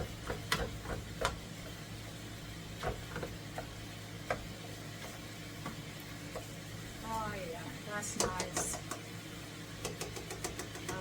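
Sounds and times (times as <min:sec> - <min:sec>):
low kitchen hum: 0:00.0 - 0:11.0
utensil tapping against skillet: 0:08.2 - 0:09.1, 0:09.8 - 0:11.0.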